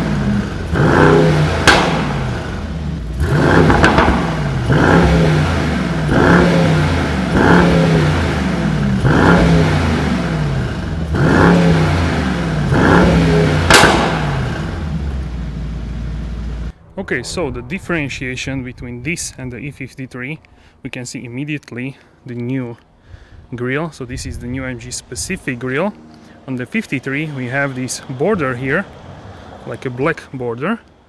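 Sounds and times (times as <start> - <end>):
car engine revving: 0.0 - 18.8
sharp exhaust crack: 0.0 - 19.9.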